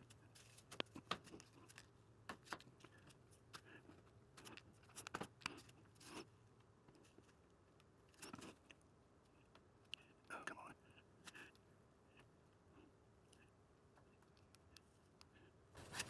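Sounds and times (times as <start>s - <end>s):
small plastic clicks and scrapes: 0.0s - 6.3s.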